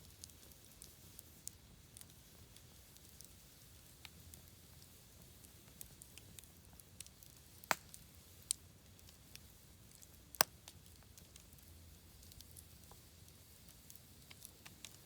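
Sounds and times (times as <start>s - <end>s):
campfire crackling: 0.0s - 15.0s
faint fire hiss: 0.0s - 15.0s
sharp fire pops: 7.5s - 8.0s.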